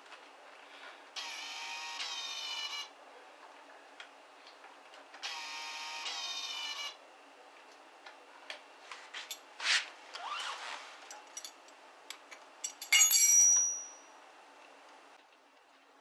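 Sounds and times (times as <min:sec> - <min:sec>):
high ringing tone: 0:12.9 - 0:14.2.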